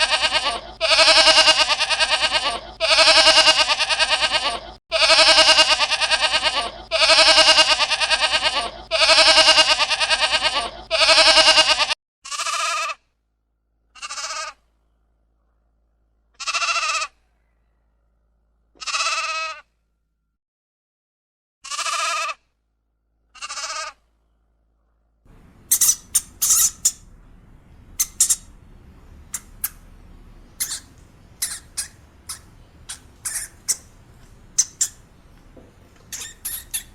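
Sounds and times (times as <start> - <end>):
bleating: 0.0 - 13.0, 13.9 - 14.6, 16.4 - 17.2, 18.8 - 19.7, 21.6 - 22.4, 23.3 - 24.0, 30.6 - 35.1, 36.1 - 36.9
high squeaks: 25.3 - 27.2, 27.8 - 36.9.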